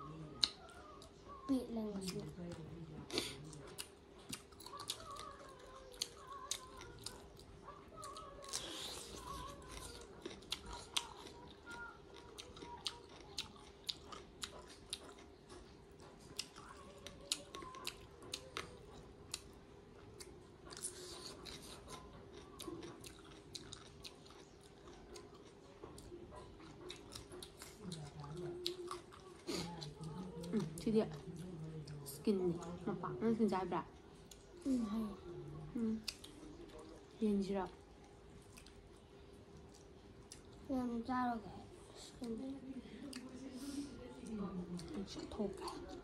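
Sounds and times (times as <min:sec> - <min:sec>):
faint steady hum: 0:00.0 - 0:46.0
crunchy chewing of cucumber: 0:03.1 - 0:32.0.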